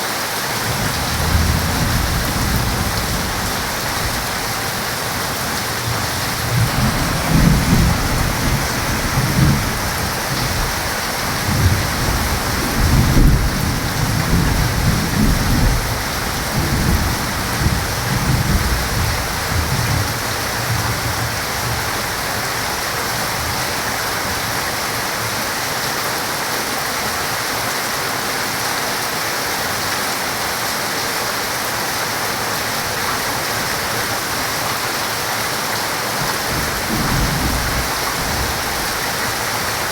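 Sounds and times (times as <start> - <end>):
heavy rain pouring: 0.0 - 39.9
rolling thunder: 0.6 - 23.6, 36.2 - 39.9.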